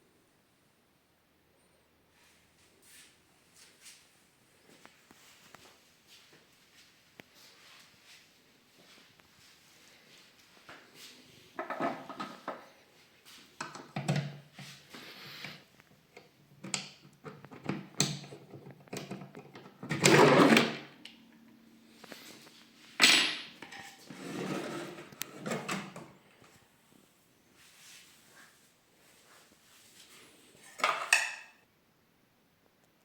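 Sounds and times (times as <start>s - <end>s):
wooden drawer scraping and knocking: 24.1s - 26.0s.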